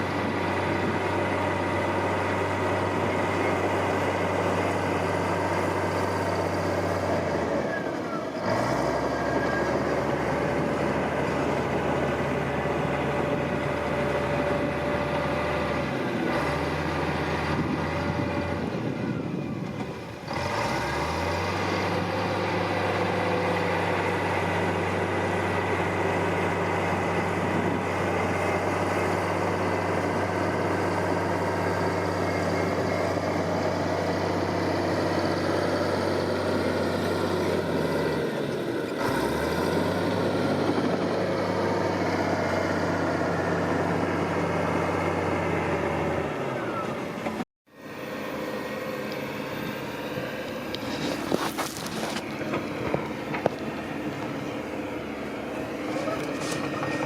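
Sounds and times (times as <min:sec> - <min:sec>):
heavy machinery diesel engine running: 0:00.0 - 0:57.0.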